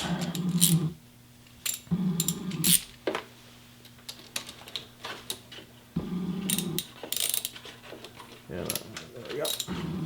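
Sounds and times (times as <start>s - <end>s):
metal hand tools clicking: 8.7s - 9.7s.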